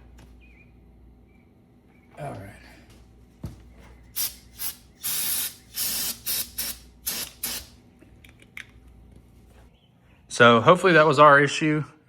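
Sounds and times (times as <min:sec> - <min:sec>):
spray nozzle hissing bursts: 0:04.2 - 0:07.8.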